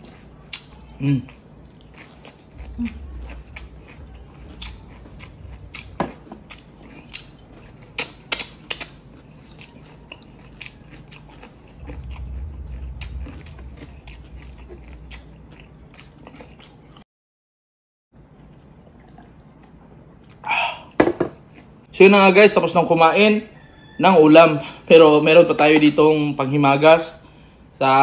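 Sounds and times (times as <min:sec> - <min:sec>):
chewing meat: 0:00.0 - 0:17.0, 0:18.2 - 0:20.5
low rumble: 0:02.6 - 0:06.0, 0:11.5 - 0:16.2.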